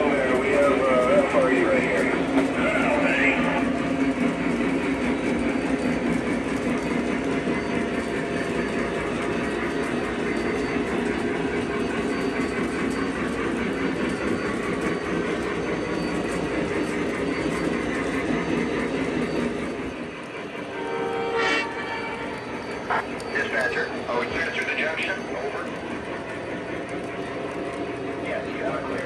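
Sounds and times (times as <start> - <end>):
wheel clatter: 0.0 - 20.6
model train rolling rumble: 0.0 - 29.0.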